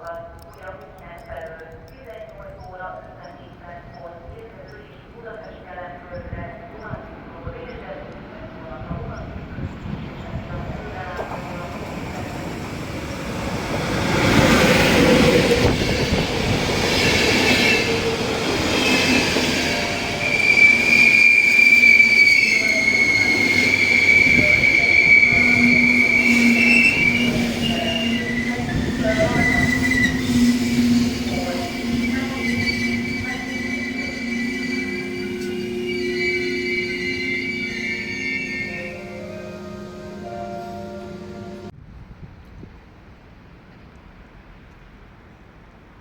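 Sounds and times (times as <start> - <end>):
train rumbling: 0.0 - 45.9
train wheels squealing: 18.7 - 39.3.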